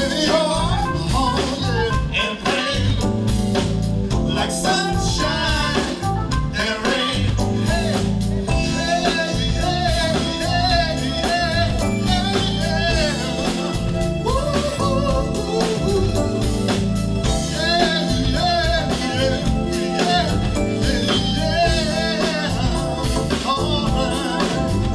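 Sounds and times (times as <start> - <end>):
person singing: 0.0 - 3.4, 4.2 - 24.9
live soul band playing: 0.0 - 24.9.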